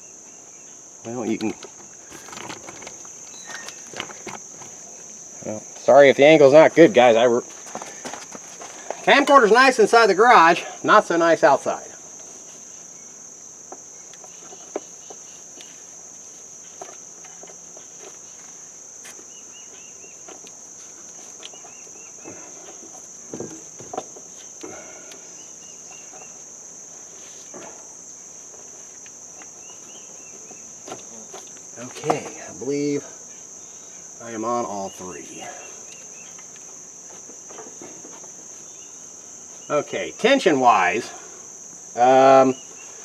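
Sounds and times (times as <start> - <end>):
insects trilling: 0.0 - 43.0.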